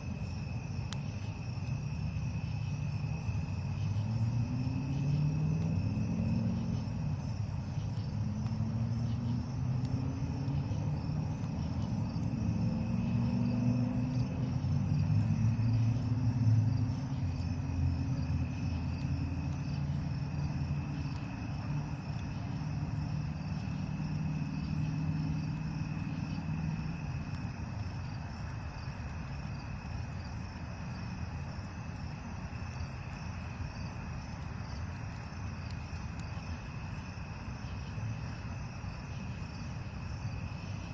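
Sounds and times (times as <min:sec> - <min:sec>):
crickets chirring: 0:00.0 - 0:40.9
passing vehicle engine hum: 0:04.0 - 0:07.2, 0:07.9 - 0:27.0.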